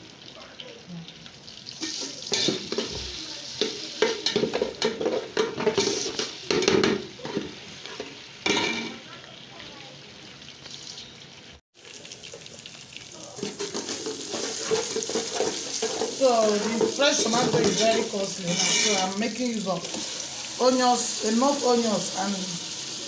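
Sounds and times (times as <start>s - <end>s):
sauce sizzling in a pot: 0.0s - 23.0s
spoon stirring and scraping pot: 1.8s - 3.0s, 3.6s - 8.2s, 13.4s - 19.2s.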